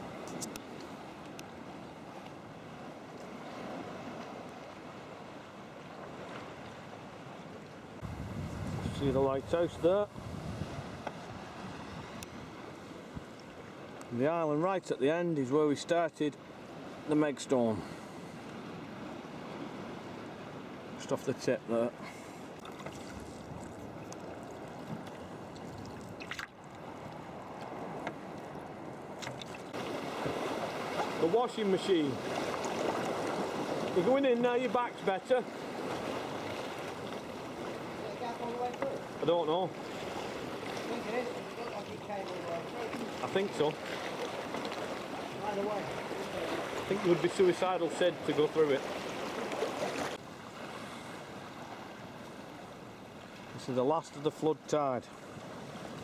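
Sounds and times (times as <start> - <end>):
water lapping against a kayak: 0.0 - 56.0
wind on microphone: 8.0 - 13.3, 22.9 - 26.4
water splash: 22.6 - 26.8, 29.2 - 34.2.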